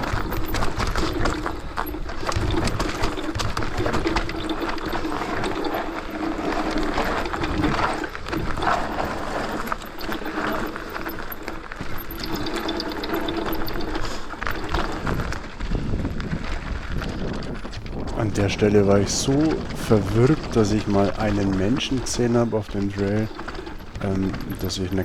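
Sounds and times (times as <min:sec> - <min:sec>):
bike knocks and rattles: 0:00.0 - 0:25.0
bike tyres crunching over rocks: 0:00.0 - 0:25.0.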